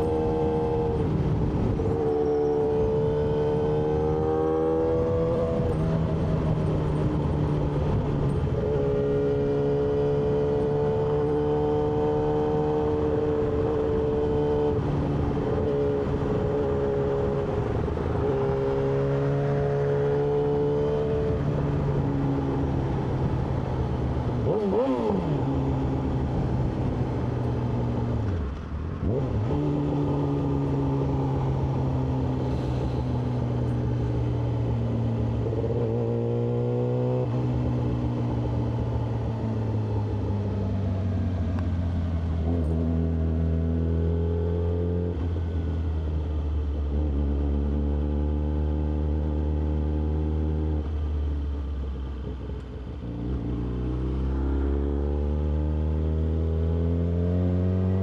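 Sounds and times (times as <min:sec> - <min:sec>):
motorcycle engine riding along: 0:00.0 - 0:58.0.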